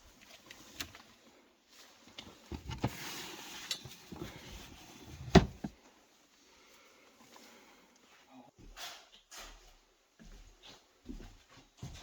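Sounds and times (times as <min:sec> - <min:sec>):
rustling and scraping: 0:00.2 - 0:05.8.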